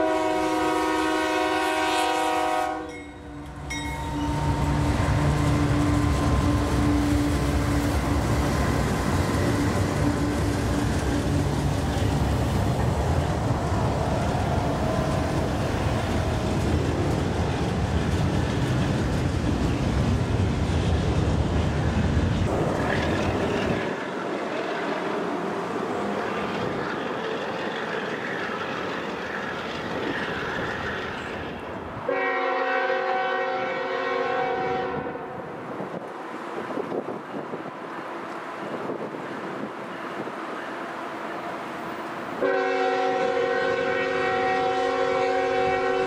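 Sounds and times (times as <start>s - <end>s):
train air horn: 0.0s - 8.5s, 32.1s - 35.5s, 42.4s - 46.0s
diesel locomotive rumbling: 0.0s - 46.0s
freight cars rolling and rattling: 3.5s - 32.0s.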